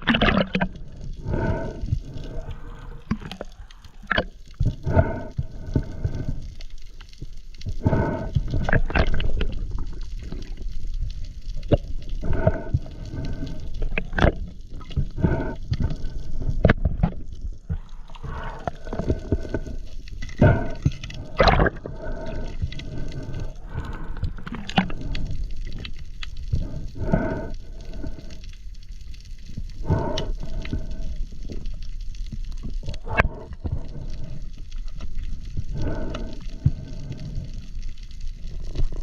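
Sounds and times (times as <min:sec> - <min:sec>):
bubbles gurgling: 0:00.0 - 0:06.3, 0:20.4 - 0:25.2
low watery rumble: 0:00.0 - 0:39.0
diver breathing underwater: 0:00.1 - 0:10.7, 0:11.5 - 0:39.0.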